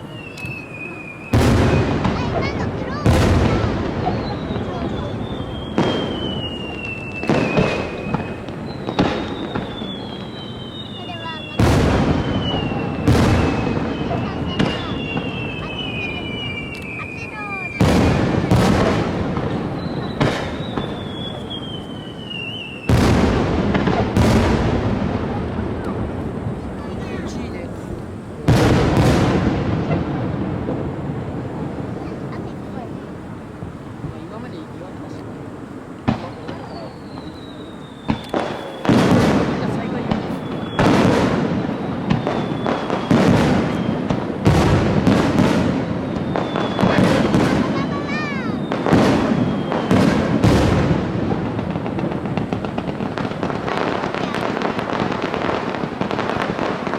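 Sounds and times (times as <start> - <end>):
high falling whistle: 0.0 - 2.0, 4.1 - 17.9, 19.7 - 23.0, 41.7 - 44.1, 48.1 - 50.1
fireworks bangs: 0.0 - 56.9.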